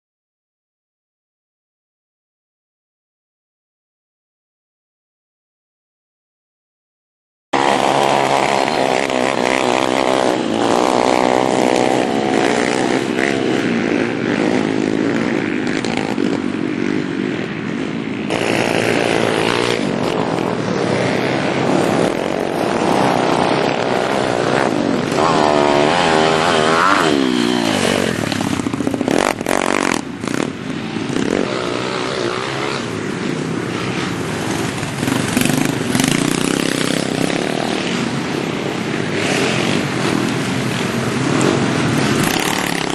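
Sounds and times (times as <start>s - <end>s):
pit bike engine revving: 7.6s - 17.5s, 18.2s - 38.1s, 40.9s - 42.9s.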